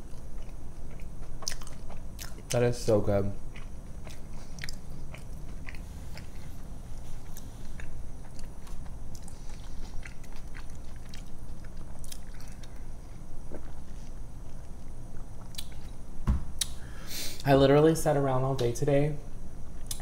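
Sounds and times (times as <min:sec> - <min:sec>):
close chewing with mouth clicks: 0:00.0 - 0:02.6, 0:03.5 - 0:12.9, 0:13.5 - 0:16.0.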